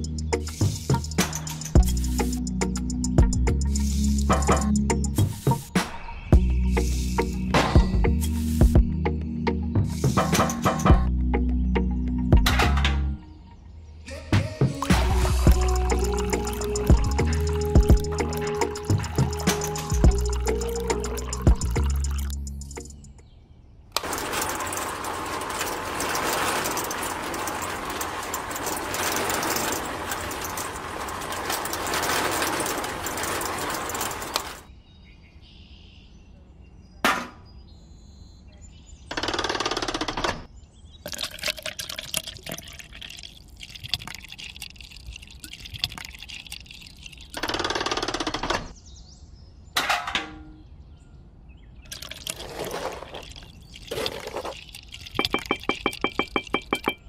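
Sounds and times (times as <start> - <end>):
small cement mixer rattling: 14.8 - 23.0, 24.0 - 34.7, 41.1 - 48.4, 51.9 - 57.0
handling noise: 24.0 - 34.7, 51.9 - 57.0.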